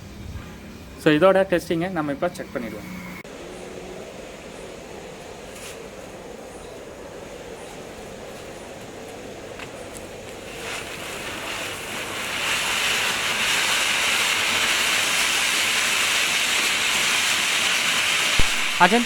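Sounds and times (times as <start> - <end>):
fountain firework hissing: 9.6 - 19.0.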